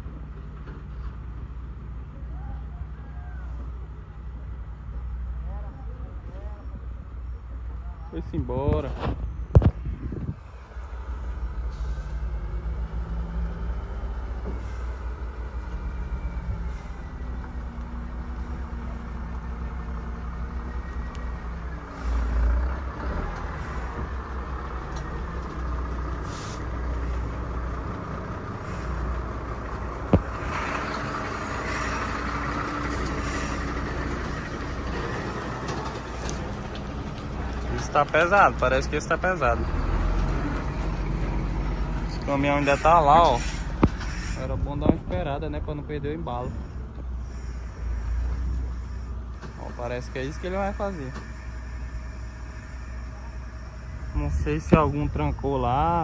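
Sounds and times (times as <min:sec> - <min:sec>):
truck diesel engines under load: 0:00.0 - 0:56.0
air hiss: 0:26.2 - 0:26.7.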